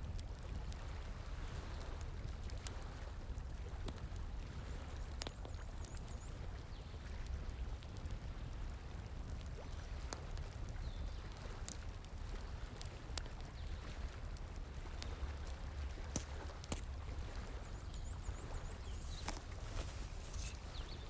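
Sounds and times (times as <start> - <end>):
bonfire crackling and popping: 3.6 - 21.0
flowing water rushing: 17.1 - 21.0.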